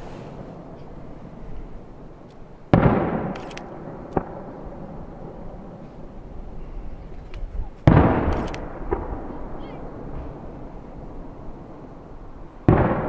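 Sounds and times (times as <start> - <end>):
firework crack: 0.0 - 6.6, 7.4 - 13.0
firework booms: 2.7 - 6.6, 7.8 - 13.0.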